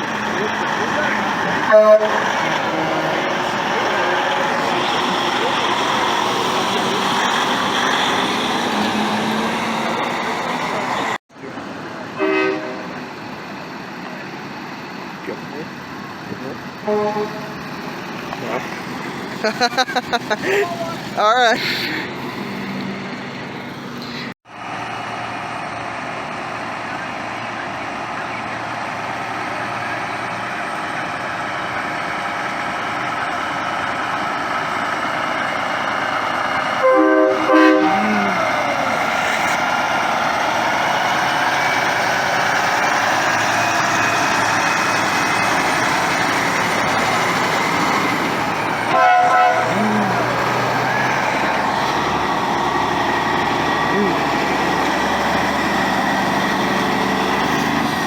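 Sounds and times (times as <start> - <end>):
truck engines din: 0.0 - 58.0
truck air horn blasts: 1.6 - 4.5, 12.2 - 13.0, 16.8 - 17.6, 36.8 - 38.4, 48.9 - 50.7.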